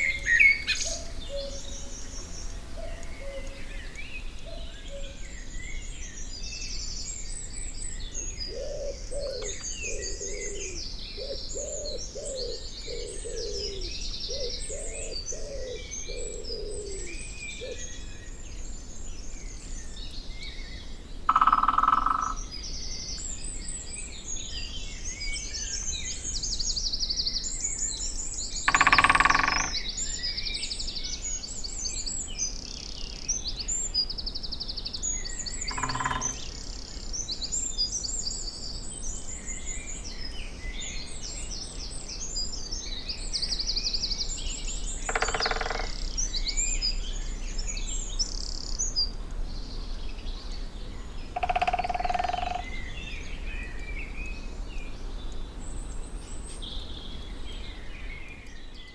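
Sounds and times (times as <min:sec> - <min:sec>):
songbirds singing and chirping: 0:00.0 - 0:58.9
woodpecker drumming: 0:21.3 - 0:22.4, 0:28.7 - 0:29.9, 0:35.6 - 0:36.6, 0:45.0 - 0:46.1, 0:51.4 - 0:52.7.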